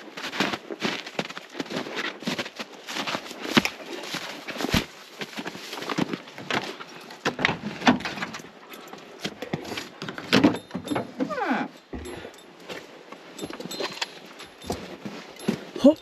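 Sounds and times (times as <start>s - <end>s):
gear knocking and rattling: 9.3s - 12.6s, 13.2s - 16.0s.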